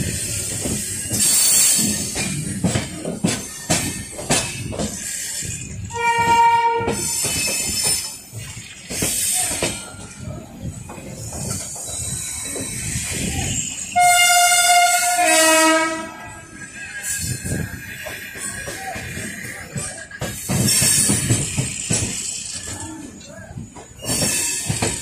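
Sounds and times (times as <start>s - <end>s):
train wheels rattling on rails: 0.0s - 25.0s
train horn: 5.9s - 7.1s, 14.0s - 16.2s.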